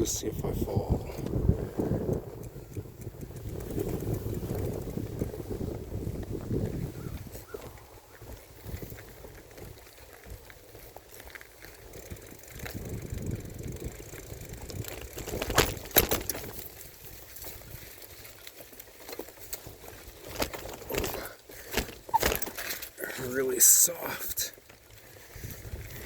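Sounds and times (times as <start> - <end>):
tyres and wind rumbling: 0.0 - 26.0
bike rattling knocks: 11.9 - 17.6, 19.1 - 23.0.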